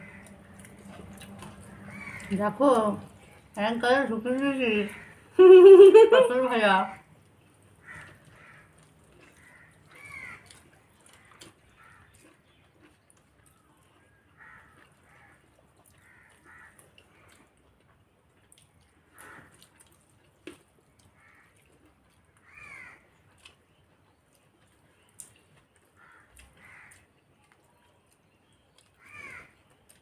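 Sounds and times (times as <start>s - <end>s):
faint crows cawing: 0.0s - 3.5s, 4.7s - 5.4s, 6.8s - 12.6s, 13.4s - 17.6s, 18.9s - 19.7s, 20.9s - 23.2s, 25.8s - 27.2s, 28.7s - 30.0s.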